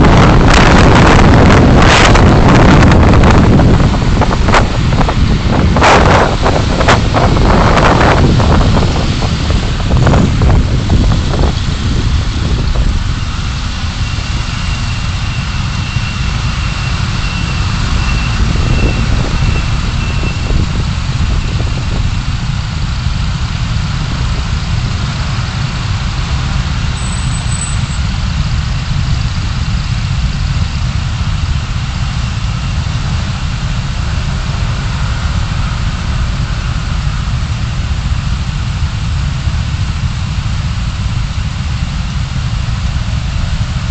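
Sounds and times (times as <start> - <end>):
car engine and road noise: 0.0 - 43.9.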